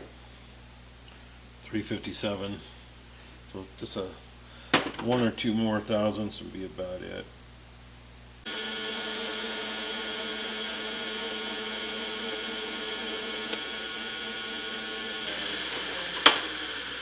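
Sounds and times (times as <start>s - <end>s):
metal lathe motor whine: 8.5s - 17.0s.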